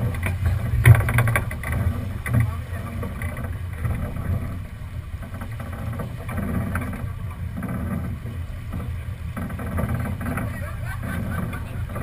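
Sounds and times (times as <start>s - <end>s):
water rushing along hull: 0.0s - 12.0s
wind buffeting microphone: 0.0s - 12.0s.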